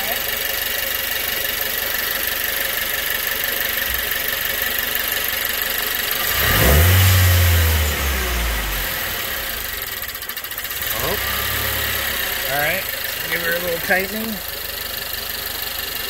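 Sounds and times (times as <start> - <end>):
car engine idling and revving: 0.0 - 16.0.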